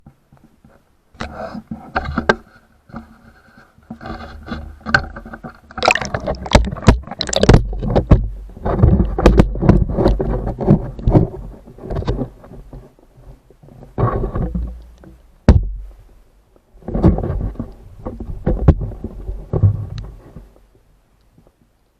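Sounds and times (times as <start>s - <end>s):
muffled knocks and scrapes: 0.0s - 16.0s, 16.8s - 20.8s
water sloshing: 3.4s - 12.8s.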